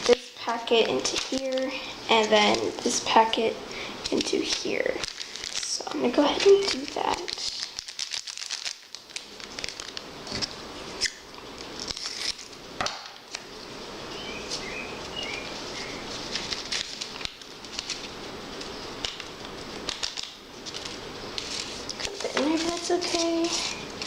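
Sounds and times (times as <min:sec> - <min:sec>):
plastic packets crinkling: 0:00.0 - 0:03.2, 0:04.0 - 0:12.6, 0:14.4 - 0:24.0.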